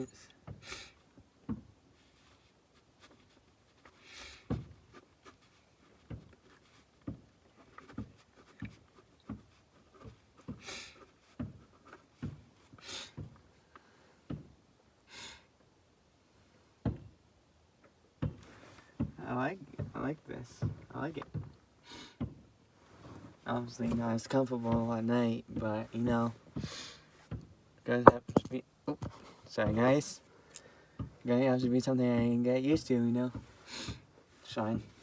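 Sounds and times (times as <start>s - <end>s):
light knocks and clicks: 27.3s - 29.2s.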